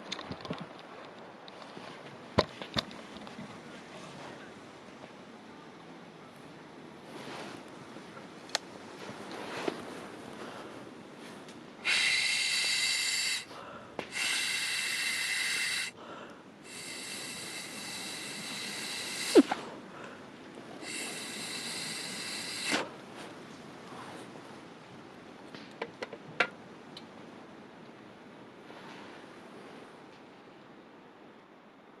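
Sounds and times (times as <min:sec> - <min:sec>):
burning wood crackles: 0:06.3 - 0:29.2
air blown into fire hissing: 0:11.2 - 0:16.0, 0:16.6 - 0:19.8, 0:20.8 - 0:23.0.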